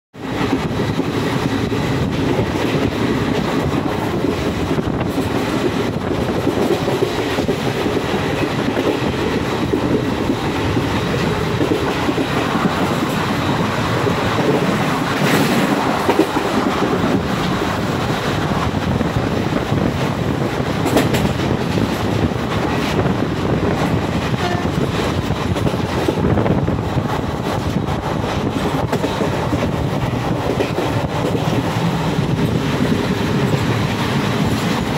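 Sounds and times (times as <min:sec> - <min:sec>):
train wheels rumbling on track: 0:00.1 - 0:34.9
clickety-clack of rail joints: 0:00.2 - 0:34.9.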